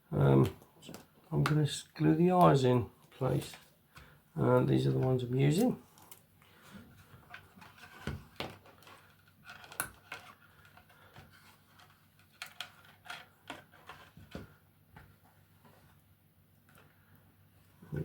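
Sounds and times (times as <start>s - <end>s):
plastic parts clicking and tapping: 7.2s - 14.6s.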